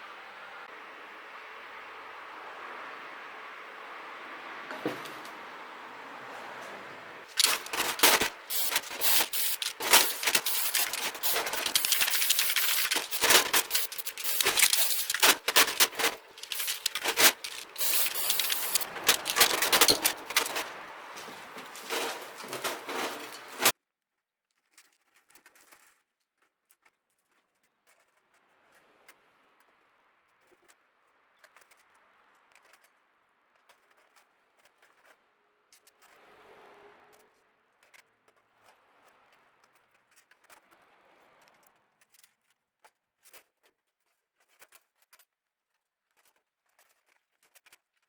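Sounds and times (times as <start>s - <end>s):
welding arc crackling and popping: 7.3s - 23.7s.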